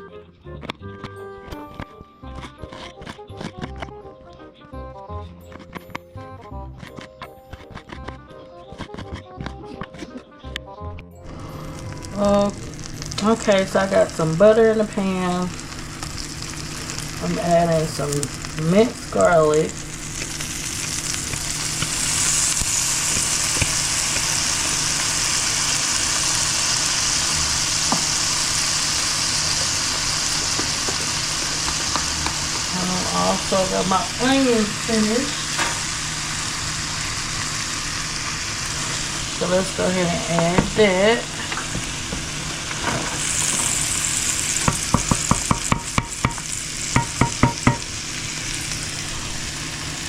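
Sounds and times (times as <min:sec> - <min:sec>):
garlic sizzling in a frying pan: 0:11.3 - 0:50.0
utensil tapping against pan: 0:44.6 - 0:46.4, 0:47.0 - 0:47.8.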